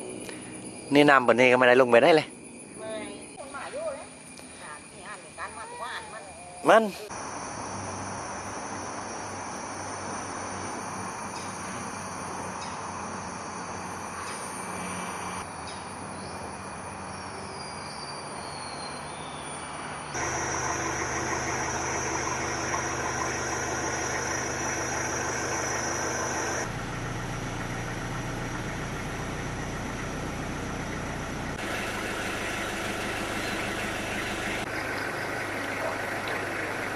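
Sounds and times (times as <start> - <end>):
engine running: 20.1 - 36.9
rushing noise: 20.2 - 26.7.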